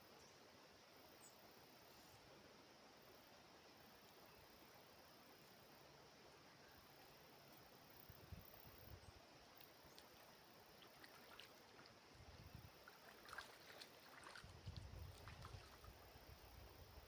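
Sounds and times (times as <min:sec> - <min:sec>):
soft water sounds: 0:07.2 - 0:17.0
light scattered ticks: 0:09.5 - 0:12.0.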